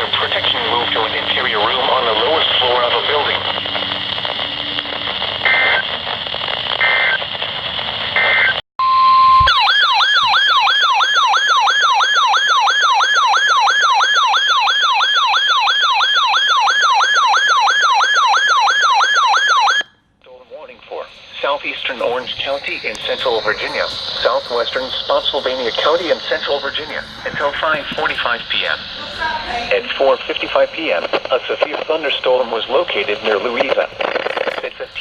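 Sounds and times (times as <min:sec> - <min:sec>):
data-burst chirps: 0:00.0 - 0:06.0, 0:22.2 - 0:29.6
radio hiss: 0:00.0 - 0:08.6, 0:20.3 - 0:35.0
steady tone: 0:00.0 - 0:09.7, 0:20.6 - 0:33.6.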